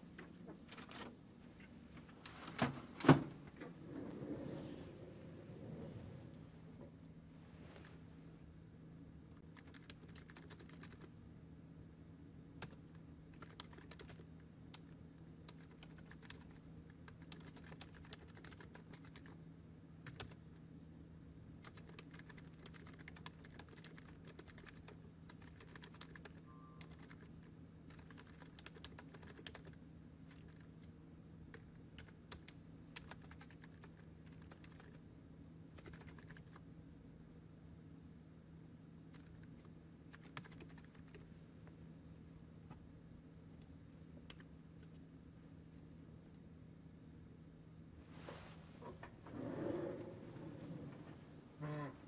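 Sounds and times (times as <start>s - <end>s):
low electrical hum: 0.0s - 52.0s
faint keyboard typing: 9.3s - 11.2s, 12.5s - 19.4s, 20.0s - 20.6s, 21.6s - 35.1s, 35.7s - 36.7s, 39.0s - 41.8s, 43.4s - 45.1s, 46.2s - 46.5s.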